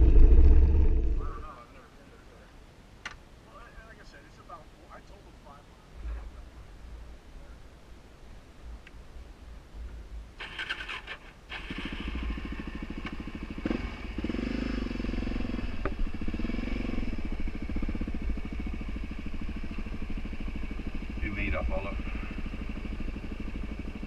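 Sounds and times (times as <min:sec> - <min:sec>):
motorcycle engine running: 0:00.0 - 0:01.6, 0:11.5 - 0:24.0
motorcycle engine cranking: 0:10.4 - 0:12.2.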